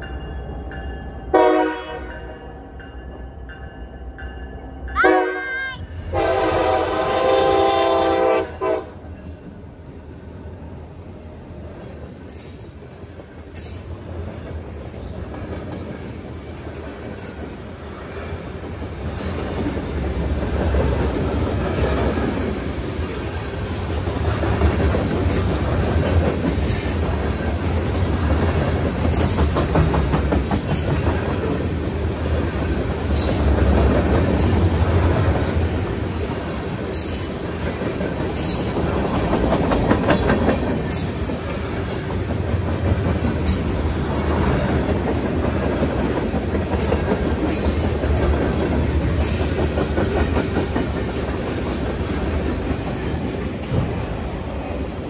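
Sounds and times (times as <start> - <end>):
railroad cars rumbling past: 0.0 - 55.0
wheels clacking over rail joints: 11.8 - 54.8.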